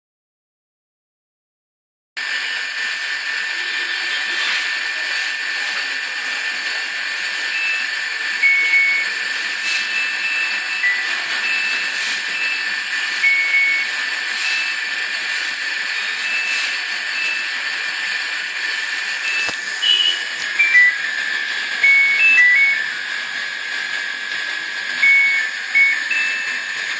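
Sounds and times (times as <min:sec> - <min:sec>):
thin constant whine: 0:02.7 - 0:26.9
short electronic beeps: 0:07.4 - 0:14.9, 0:16.2 - 0:17.6, 0:19.2 - 0:21.1, 0:21.8 - 0:22.9, 0:25.0 - 0:26.8.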